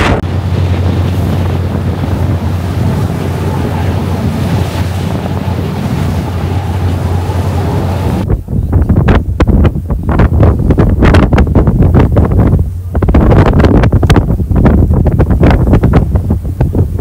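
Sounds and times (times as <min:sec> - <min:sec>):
ferry engine drone: 0:00.0 - 0:10.6
rushing water: 0:00.0 - 0:17.0
wind buffeting microphone: 0:00.0 - 0:17.0.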